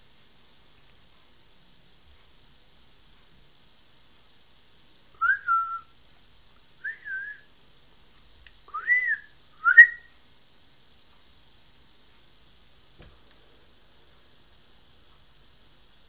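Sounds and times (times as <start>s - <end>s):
whistled notes: 5.2s - 5.9s, 8.7s - 10.1s.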